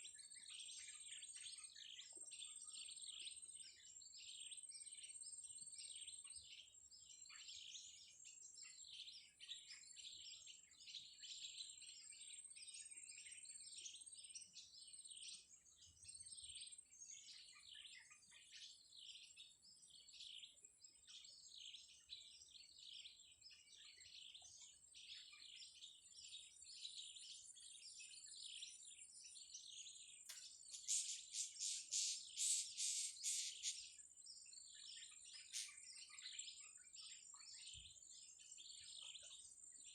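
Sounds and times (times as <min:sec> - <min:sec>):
small birds chattering: 0:00.0 - 0:39.9
shrill bird calls: 0:30.5 - 0:34.0, 0:34.7 - 0:38.0.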